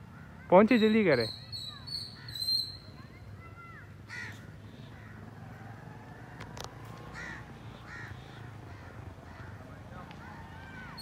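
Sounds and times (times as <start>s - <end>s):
harsh caw-like bird calls: 0.0s - 11.0s
birds whistling: 0.5s - 5.1s.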